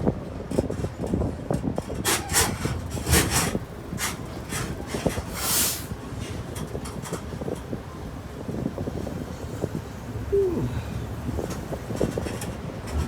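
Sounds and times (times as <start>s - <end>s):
tram rumbling and rattling: 0.0s - 13.0s
short bursts of hiss: 5.3s - 5.9s.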